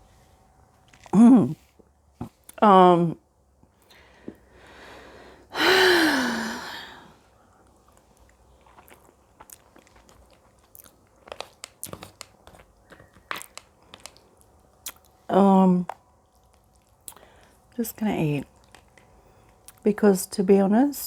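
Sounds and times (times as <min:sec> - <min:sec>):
person chewing food: 0:00.7 - 0:02.6, 0:07.3 - 0:15.2, 0:15.9 - 0:17.8, 0:18.5 - 0:19.8
breathy voiced sound: 0:03.8 - 0:07.7
lip smacks: 0:15.9 - 0:17.6.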